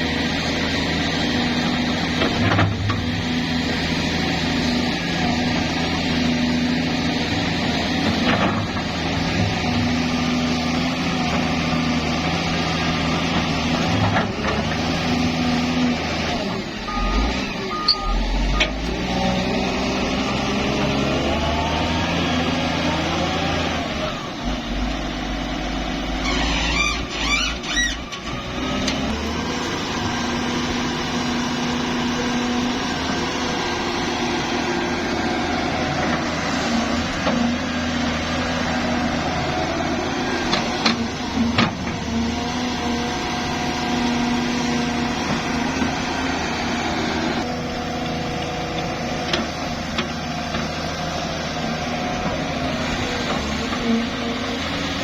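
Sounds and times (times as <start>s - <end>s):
diesel engine of heavy machinery: 0.0s - 55.0s
squeaking and clatter: 26.2s - 28.3s.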